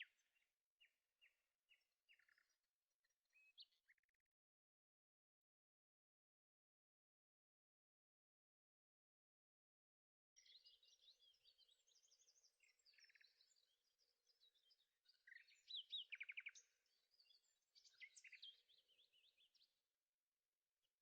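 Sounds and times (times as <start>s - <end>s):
faint birdsong chirps and trills: 0.0s - 6.9s, 10.1s - 21.0s.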